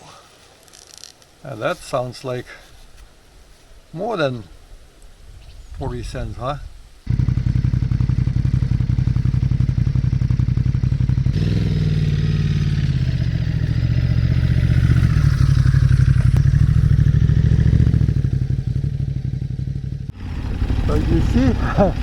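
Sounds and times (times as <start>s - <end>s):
motorcycle engine revving: 7.1s - 22.0s.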